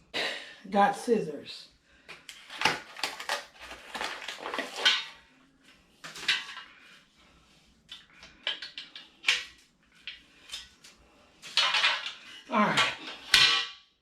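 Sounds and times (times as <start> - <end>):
packaging rustling: 2.2 - 5.2
metal parts clinking: 11.4 - 13.7.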